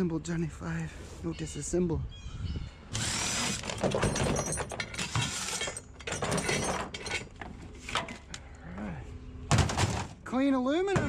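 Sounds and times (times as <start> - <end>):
metal parts clinking and clattering: 3.6 - 8.3.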